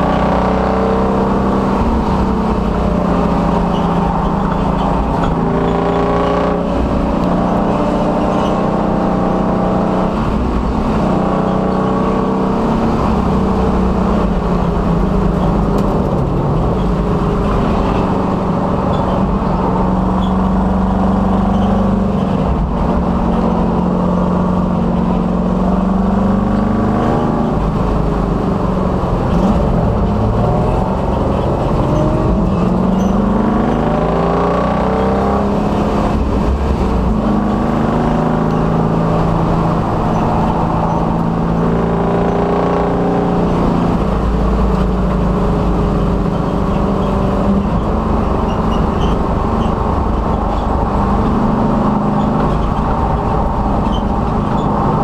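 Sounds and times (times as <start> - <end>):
race car engine revving: 0.0 - 55.0
wind and road noise: 0.0 - 55.0.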